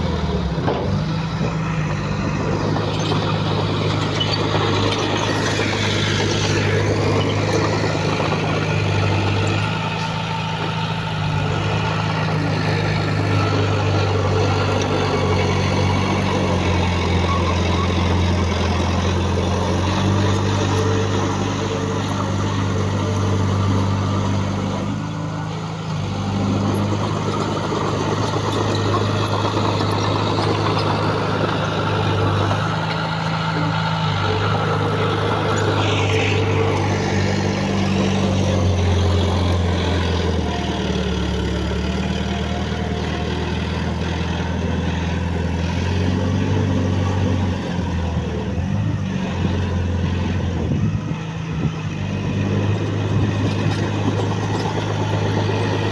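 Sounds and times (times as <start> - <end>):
heavy diesel engine running: 0.0 - 55.9.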